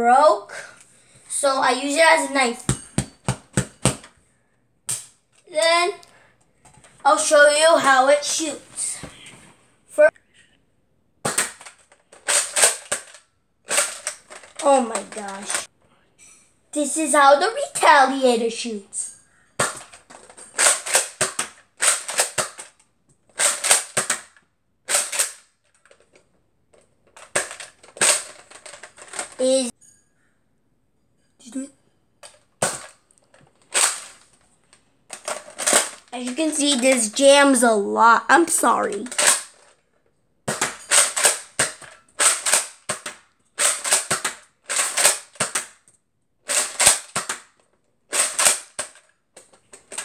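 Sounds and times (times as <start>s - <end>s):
toy blaster plastic clacks: 11.3s - 15.7s, 19.6s - 26.2s, 27.1s - 29.6s, 35.1s - 37.6s, 38.5s - 39.8s, 40.5s - 45.9s, 46.5s - 50.0s.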